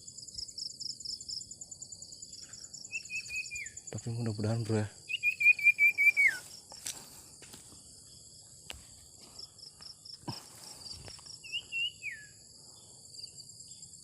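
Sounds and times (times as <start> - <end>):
crickets chirping: 0.0 - 14.0
bird warbled call: 5.1 - 6.5.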